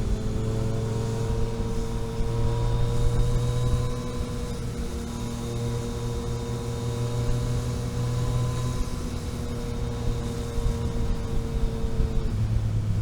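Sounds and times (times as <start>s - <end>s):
road and wind noise: 0.0s - 13.0s
vehicle engine running: 0.0s - 13.0s.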